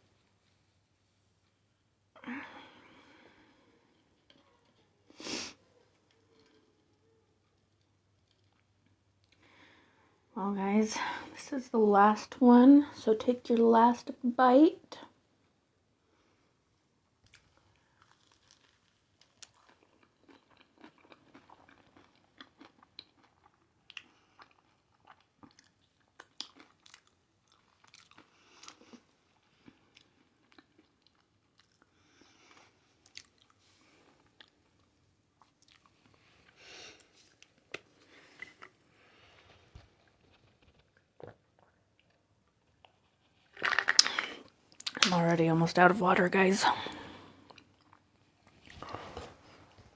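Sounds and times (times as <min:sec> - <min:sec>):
person chewing crunchy food: 0:17.3 - 0:45.0.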